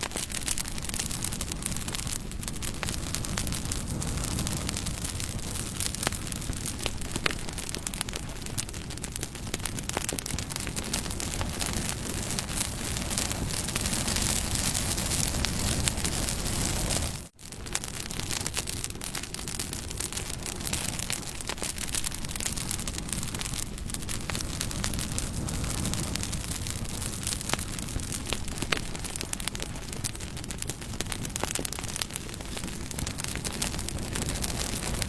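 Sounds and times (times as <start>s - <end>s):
campfire crackling and popping: 0.0s - 35.0s.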